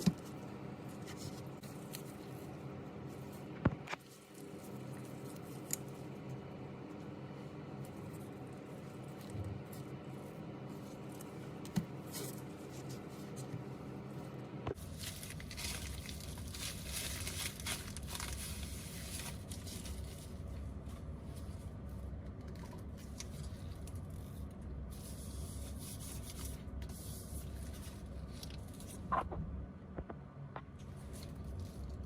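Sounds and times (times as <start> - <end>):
low hum: 12.4 - 32.0.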